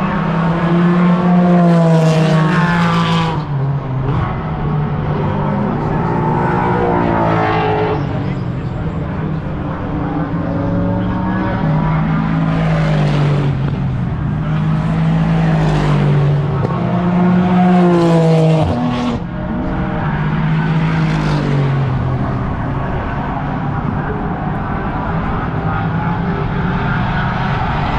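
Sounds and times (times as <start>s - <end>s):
race cars passing at speed: 0.0s - 27.9s.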